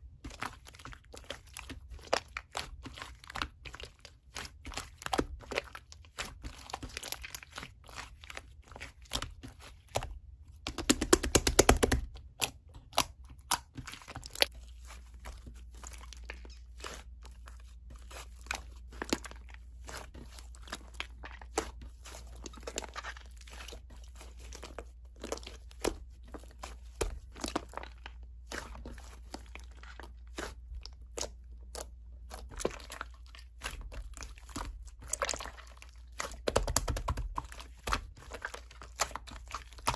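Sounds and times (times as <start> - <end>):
slime crackling and popping: 24.5 - 39.9.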